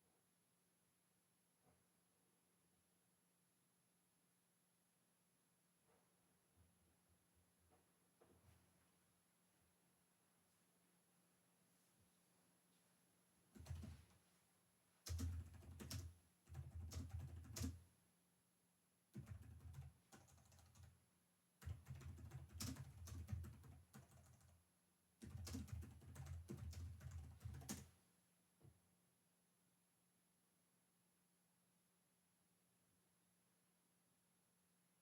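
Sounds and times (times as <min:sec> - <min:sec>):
typing on keyboard: 0:13.6 - 0:14.1, 0:15.0 - 0:17.8, 0:19.1 - 0:21.0, 0:21.6 - 0:24.6, 0:25.2 - 0:28.0.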